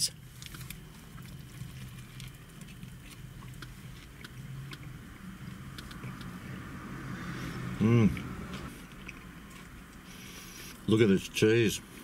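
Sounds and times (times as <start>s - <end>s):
low steady hum: 0.0s - 12.0s
person chewing: 0.3s - 6.7s, 7.4s - 10.9s
wet mouth clicks and smacks: 5.7s - 6.4s.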